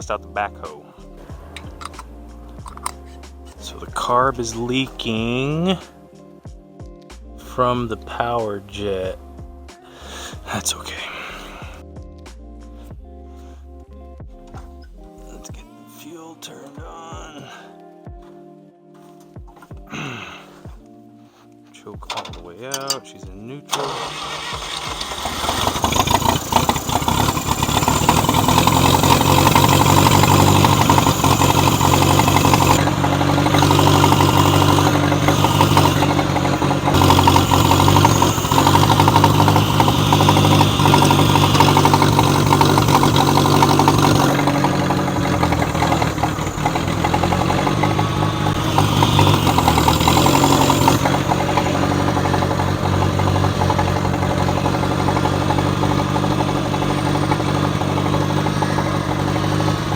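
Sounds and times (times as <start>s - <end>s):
tractor engine starting and running: 1.3s - 5.9s, 23.7s - 59.9s.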